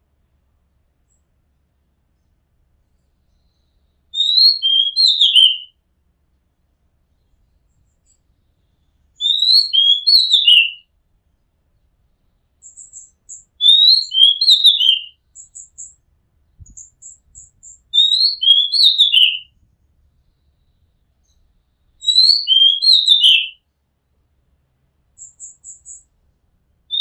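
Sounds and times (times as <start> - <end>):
bird singing whistled phrases: 4.2 - 5.7, 9.2 - 10.8, 12.6 - 15.9, 16.8 - 19.5, 22.0 - 23.6.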